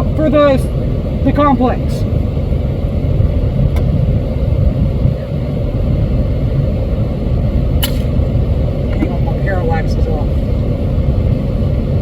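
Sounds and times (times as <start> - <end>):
truck engine idling: 0.0 - 12.0
short sharp click: 7.8 - 8.1.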